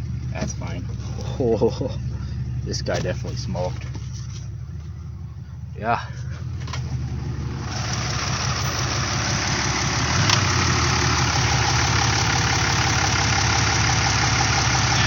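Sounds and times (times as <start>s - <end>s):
pickup truck engine idling: 0.0s - 15.0s.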